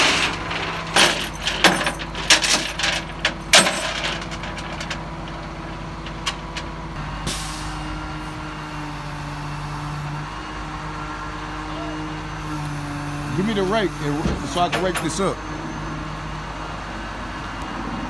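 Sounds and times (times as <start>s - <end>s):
metallic clanks and knocks: 0.0s - 7.0s, 14.2s - 15.3s
vehicle engine idling: 0.0s - 7.0s.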